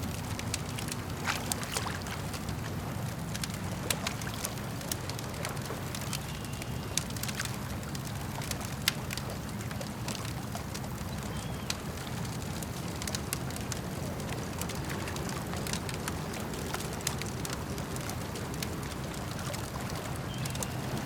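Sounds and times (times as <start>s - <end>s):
campfire crackling and popping: 0.0s - 21.0s
lake water lapping: 0.0s - 21.0s.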